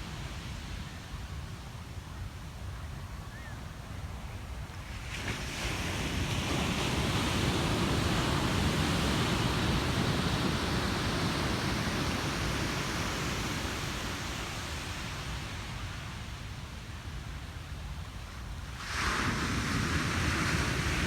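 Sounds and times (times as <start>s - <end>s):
ocean wave breaking: 18.8s - 21.0s.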